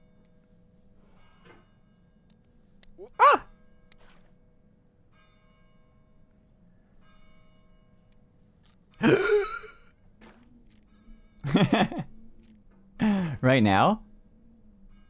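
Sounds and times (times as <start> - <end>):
faint bell-like tones: 0.0 - 9.0, 9.7 - 15.0
breathy vocal exclamation: 3.0 - 3.5.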